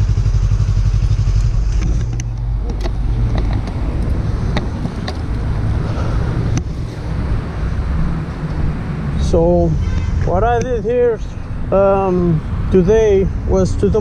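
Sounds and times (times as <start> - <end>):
motorcycle engine running: 0.0 - 6.2.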